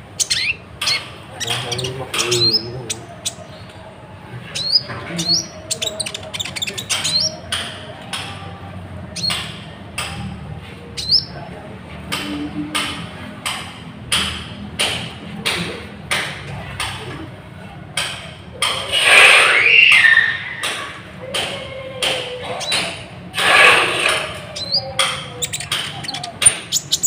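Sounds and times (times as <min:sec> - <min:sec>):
bird chirps: 0:00.2 - 0:03.7, 0:04.6 - 0:07.7, 0:09.2 - 0:09.5, 0:11.0 - 0:11.4, 0:24.5 - 0:27.0.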